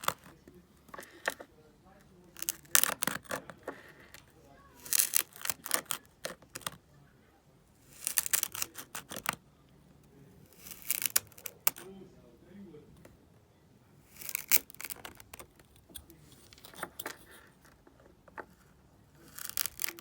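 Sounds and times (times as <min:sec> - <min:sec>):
sand crackling clicks: 0:19.3 - 0:20.0.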